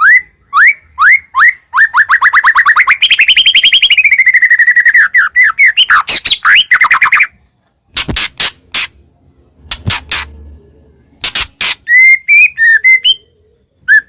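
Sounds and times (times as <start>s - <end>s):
songbird singing: 0.0s - 14.0s
sharp clicking bird notes: 7.9s - 9.0s, 9.6s - 10.4s, 11.2s - 13.1s.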